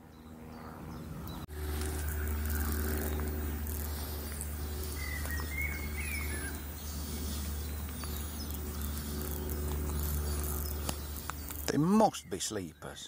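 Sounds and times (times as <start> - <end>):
bird chirping: 0.0 - 13.0
faint high bird calls: 0.5 - 13.0
steady low rumble: 1.4 - 11.8
footsteps crunching on gravel: 1.5 - 11.8.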